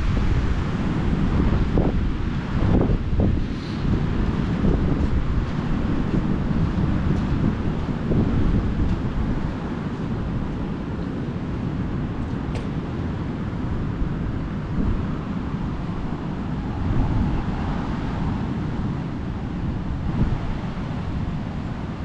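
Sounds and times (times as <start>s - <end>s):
ocean surf: 0.0s - 22.0s
wind buffeting microphone: 0.0s - 22.0s.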